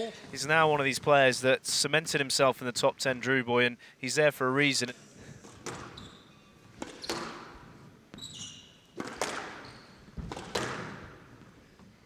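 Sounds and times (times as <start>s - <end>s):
shoe squeaks on court floor: 5.0s - 11.9s
ball hitting court walls: 5.2s - 11.8s
racket striking squash ball: 5.3s - 11.5s.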